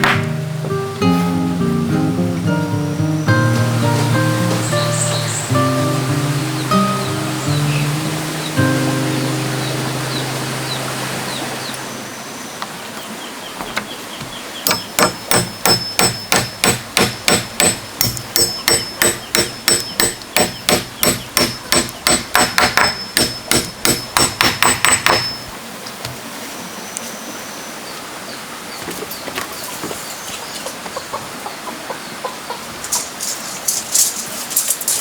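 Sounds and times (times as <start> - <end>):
hammer striking nails into wood: 0.0 - 0.3, 14.7 - 25.5.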